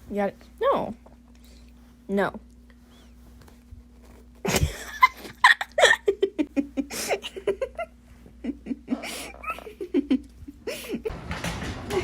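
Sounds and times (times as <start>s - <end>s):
person laughing hard: 4.5s - 11.1s.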